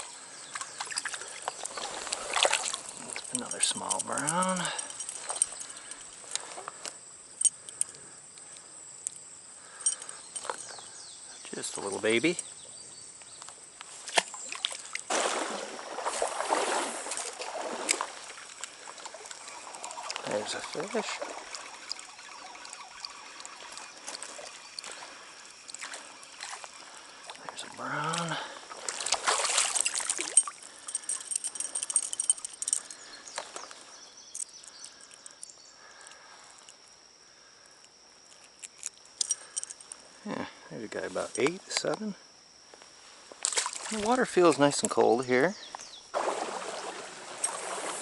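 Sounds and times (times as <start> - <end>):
water splashing and sloshing: 0.0 - 7.9, 13.9 - 33.9, 43.3 - 45.0, 46.1 - 48.0
high insect trill: 0.0 - 48.0.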